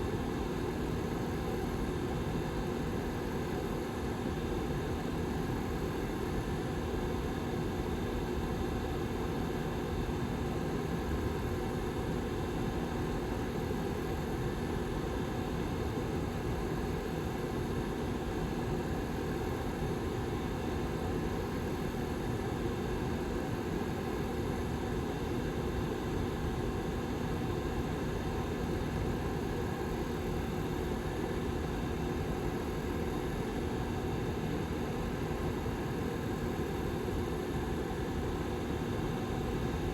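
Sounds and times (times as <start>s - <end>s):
heater fan running: 0.0s - 39.9s.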